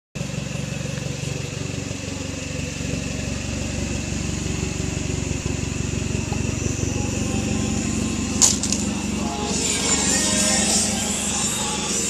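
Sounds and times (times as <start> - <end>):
car engine idling: 0.2 - 12.0.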